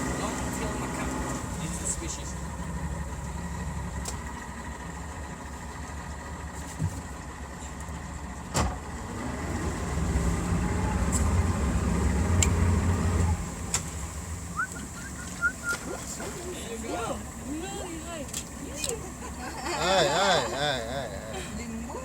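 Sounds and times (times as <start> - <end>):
boat engine idling: 0.0 - 22.0.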